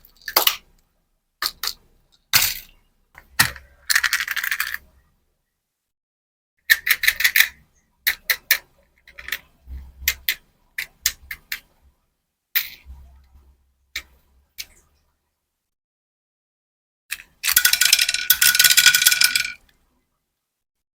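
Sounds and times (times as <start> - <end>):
hard candies and plastic packaging clicking: 0.0 - 0.8, 1.4 - 4.8.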